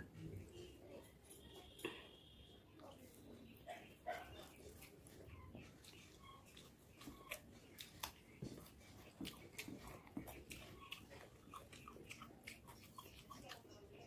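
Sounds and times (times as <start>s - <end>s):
person chewing rice: 3.8s - 14.0s.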